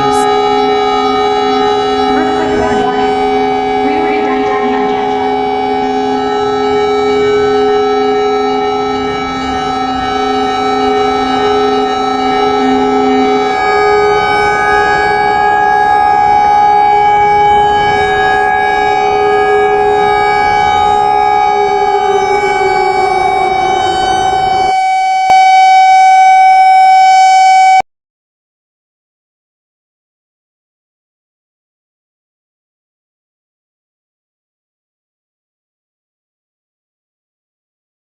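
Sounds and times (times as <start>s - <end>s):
warning siren chord: 0.0s - 27.8s.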